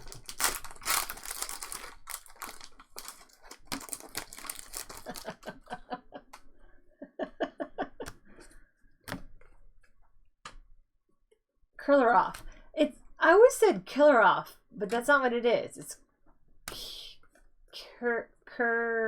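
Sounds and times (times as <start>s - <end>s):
foil wrappers crinkling and tearing: 0.0s - 5.7s
cards clicking and tapping: 9.1s - 9.4s.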